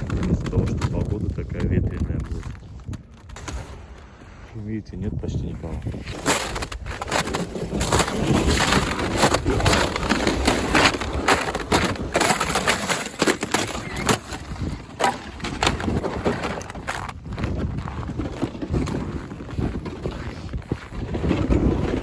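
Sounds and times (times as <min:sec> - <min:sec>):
wind buffeting microphone: 0:00.0 - 0:12.6, 0:13.6 - 0:22.0
snow and ice crunching: 0:00.0 - 0:22.0.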